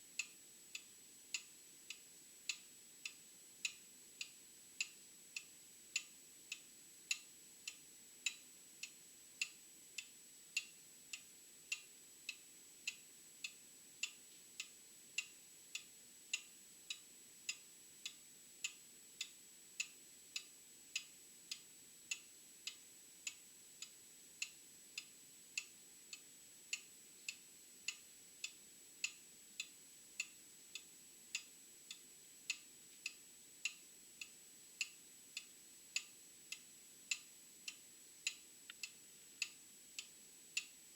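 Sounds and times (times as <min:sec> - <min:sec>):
mechanical clock ticking: 0:26.7 - 0:40.7.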